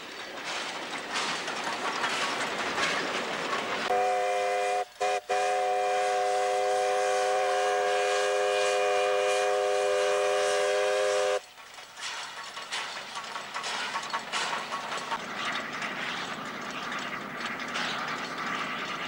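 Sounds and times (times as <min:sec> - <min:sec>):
steam locomotive whistle: 0:03.9 - 0:11.4.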